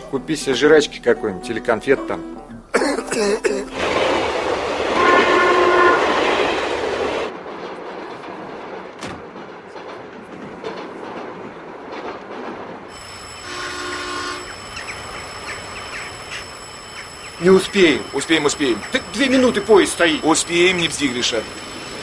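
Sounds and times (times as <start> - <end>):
rail noise: 0.0 - 1.8, 3.4 - 22.0
train running: 0.0 - 1.8, 2.5 - 22.0
train horn: 4.8 - 7.3, 13.4 - 14.6.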